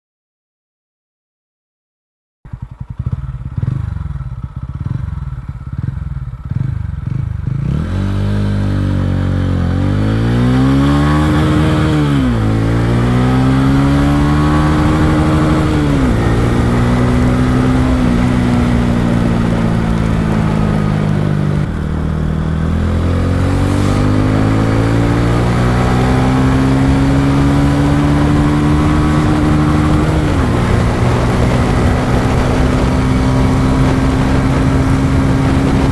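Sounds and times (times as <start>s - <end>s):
motorcycle engine idling and accelerating: 2.5s - 35.9s.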